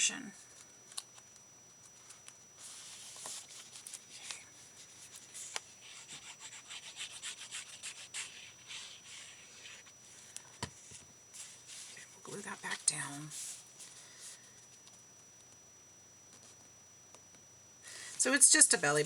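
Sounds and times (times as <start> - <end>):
paper rustling: 0.5 - 12.0.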